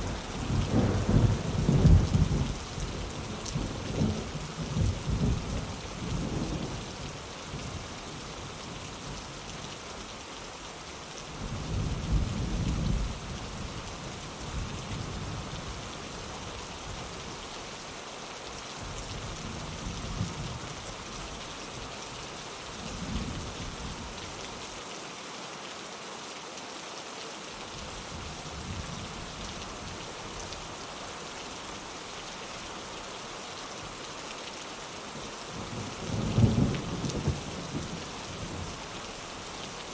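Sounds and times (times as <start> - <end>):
thunder rumbling: 0.0 - 2.6
rain on a windowpane: 0.0 - 39.9.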